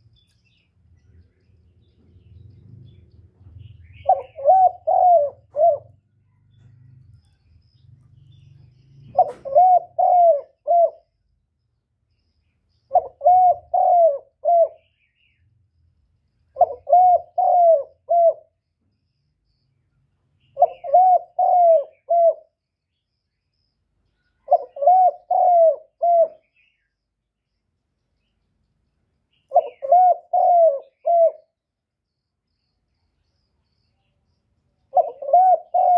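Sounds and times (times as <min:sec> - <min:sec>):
dove cooing: 0:03.6 - 0:07.4, 0:08.4 - 0:11.2, 0:12.9 - 0:14.9, 0:16.5 - 0:18.6, 0:20.5 - 0:22.6, 0:24.4 - 0:26.6, 0:29.5 - 0:31.6, 0:34.9 - 0:35.9.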